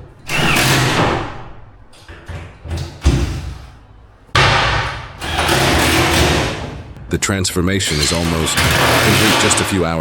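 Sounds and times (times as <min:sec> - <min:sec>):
furniture assembly knocks and thumps: 0:00.3 - 0:03.8.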